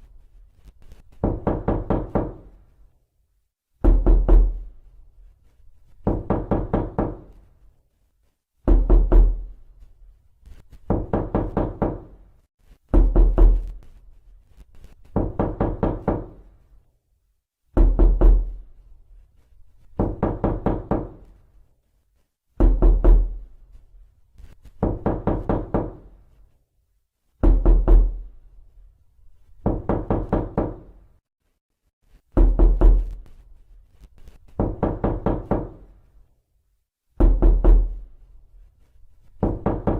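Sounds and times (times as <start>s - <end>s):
knocking on a door: 1.2s - 2.6s, 3.8s - 4.7s, 6.0s - 7.4s, 8.6s - 9.5s, 10.8s - 12.2s, 12.9s - 13.8s, 15.1s - 16.5s, 17.7s - 18.6s, 20.0s - 21.2s, 22.6s - 23.4s, 24.8s - 26.1s, 27.4s - 28.3s, 29.6s - 31.0s, 32.3s - 33.2s, 34.5s - 35.9s, 37.2s - 38.0s, 39.4s - 39.9s.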